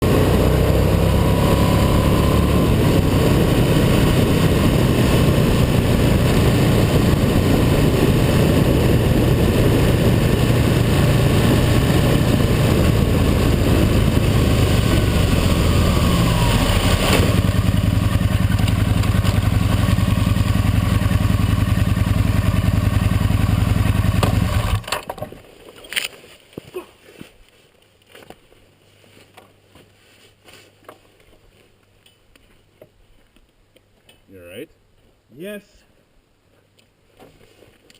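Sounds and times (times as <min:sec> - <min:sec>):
motorcycle engine running: 0:00.0 - 0:24.9.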